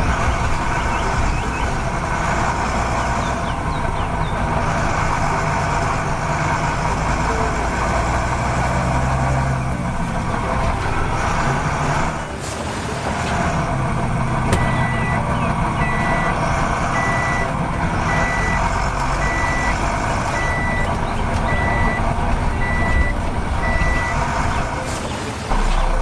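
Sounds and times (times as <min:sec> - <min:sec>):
engine rumbling: 0:00.0 - 0:26.0
reversing alarm beeping: 0:14.5 - 0:24.8.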